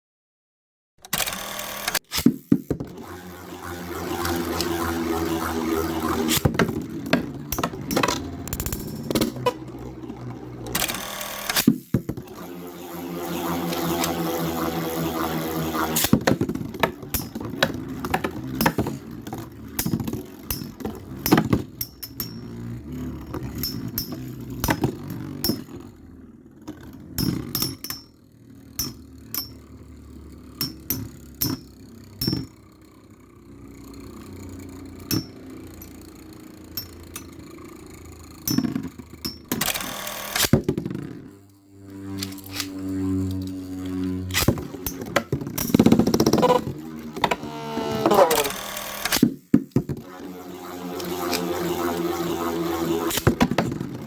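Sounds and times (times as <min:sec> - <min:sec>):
spinning tops whirring: 0:01.2 - 0:54.0
metal tops clacking together: 0:19.7 - 0:22.6.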